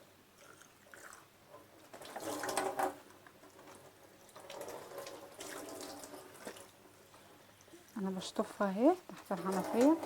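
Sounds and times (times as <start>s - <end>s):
tap water running into sink: 1.9s - 7.0s, 9.2s - 10.0s.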